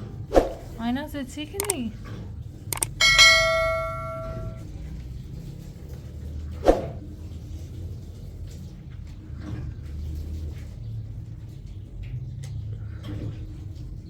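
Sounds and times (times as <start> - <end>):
quick clicks: 1.6 - 1.9, 2.8 - 4.6
metal object ringing when struck: 2.8 - 4.6.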